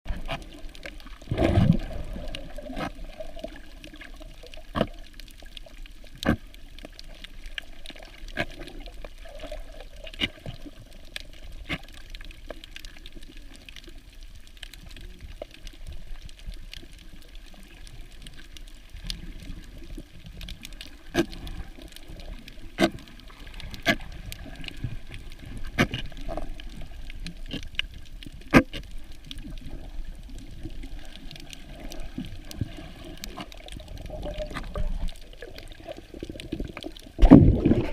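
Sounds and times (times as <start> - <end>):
underwater water rush: 0.0 - 37.9
gurgling rush: 31.6 - 37.9.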